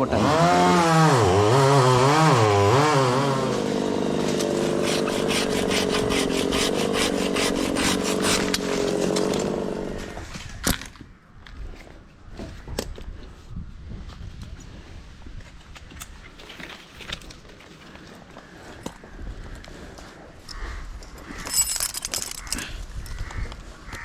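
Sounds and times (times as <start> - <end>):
chainsaw cutting wood: 0.0 - 10.3.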